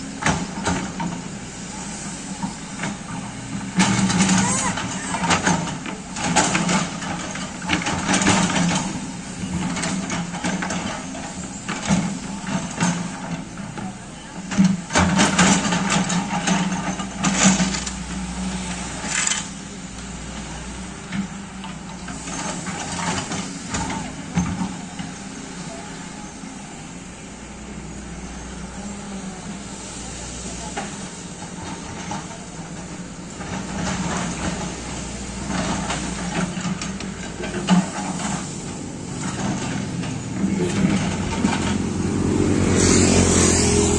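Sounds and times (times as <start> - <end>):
excavator diesel engine running: 0.0 - 43.9
excavator knocks: 2.3 - 18.3.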